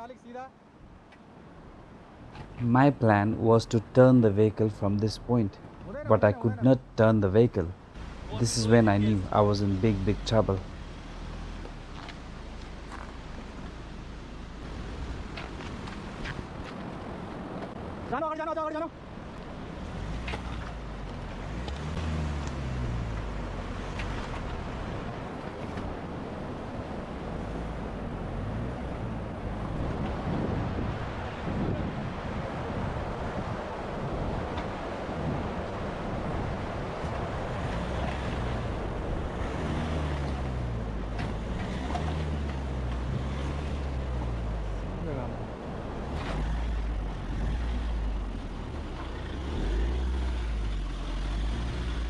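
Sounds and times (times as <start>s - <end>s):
diesel engine droning: 2.3s - 15.1s, 37.3s - 52.0s
diesel engine running: 2.4s - 14.7s.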